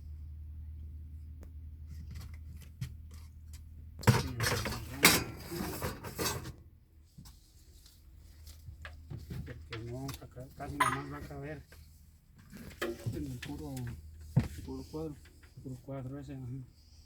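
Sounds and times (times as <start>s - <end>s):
low steady hum: 0.0s - 17.0s
metal tools clinking and clattering: 10.7s - 11.4s.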